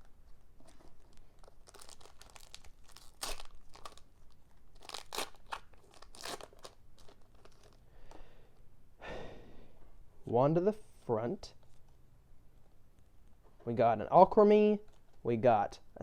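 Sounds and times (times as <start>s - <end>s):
foil wrapper crinkling and tearing: 0.6s - 7.8s.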